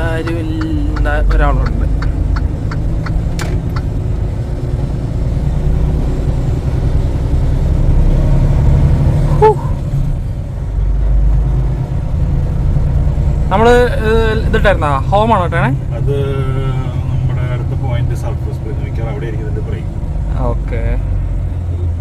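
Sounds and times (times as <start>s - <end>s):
diesel truck engine rumble: 0.0s - 22.0s
faint clicks: 0.2s - 3.9s.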